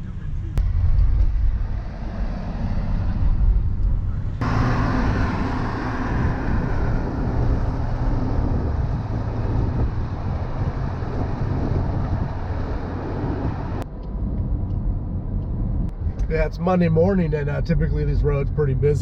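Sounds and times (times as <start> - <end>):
car engine and road noise: 0.0 - 19.0.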